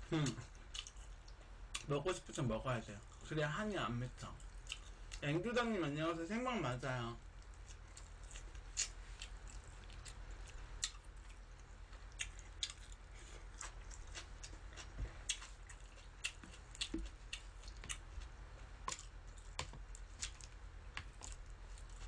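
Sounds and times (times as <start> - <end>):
person chewing food: 0.0 - 1.9, 4.2 - 5.2, 7.2 - 22.0
steady low hum: 0.0 - 22.0.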